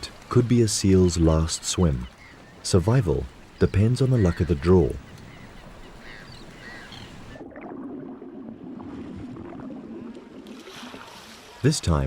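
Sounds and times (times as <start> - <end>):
seawater rushing and gurgling: 0.0 - 12.0.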